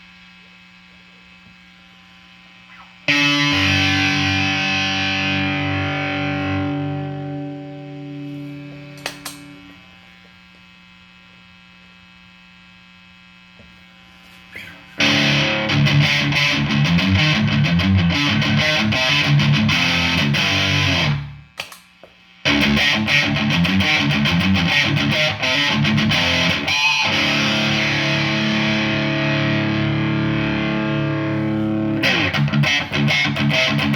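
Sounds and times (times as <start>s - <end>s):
low amp hum: 0.0s - 33.9s
electric guitar playing: 2.7s - 9.8s, 14.6s - 21.5s, 22.4s - 33.9s.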